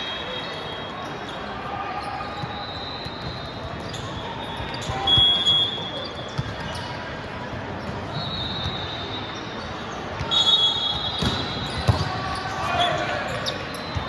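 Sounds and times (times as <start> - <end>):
sneaker squeak on court: 2.2 - 7.1, 10.9 - 14.0.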